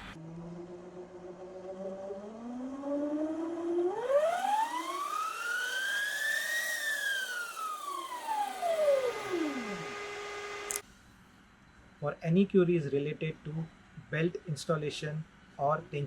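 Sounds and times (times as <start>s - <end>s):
electric scooter motor whine: 0.0s - 10.8s.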